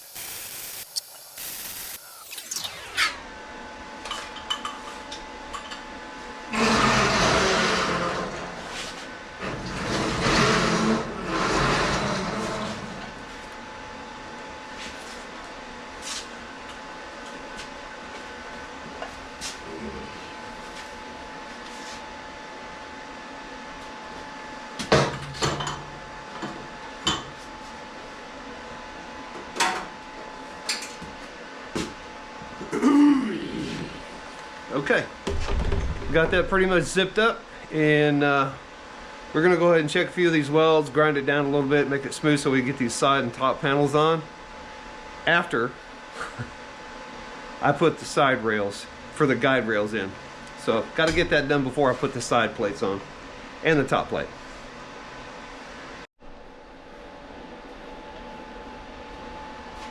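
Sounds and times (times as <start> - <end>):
crackling weld runs: 0.0 - 3.3
steady hum: 0.0 - 8.4, 31.5 - 59.9.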